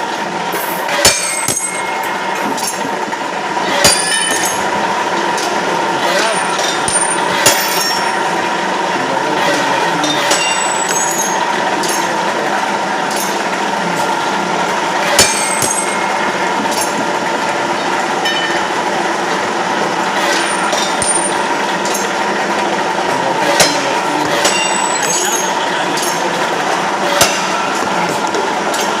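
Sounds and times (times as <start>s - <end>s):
machinery humming: 0.0s - 29.0s
metal clanks: 0.9s - 8.4s, 10.0s - 12.4s, 13.0s - 13.6s, 15.0s - 17.2s, 20.2s - 22.6s, 23.5s - 29.0s.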